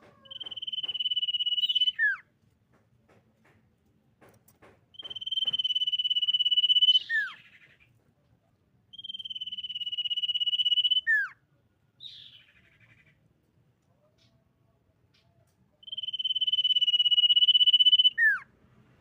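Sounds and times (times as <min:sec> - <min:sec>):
bird singing trills: 0:00.3 - 0:02.2, 0:05.0 - 0:07.8, 0:08.9 - 0:11.4, 0:15.2 - 0:18.4.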